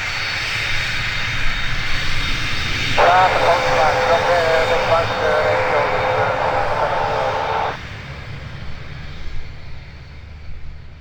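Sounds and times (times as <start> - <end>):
jet engine whine: 2.9 - 7.8.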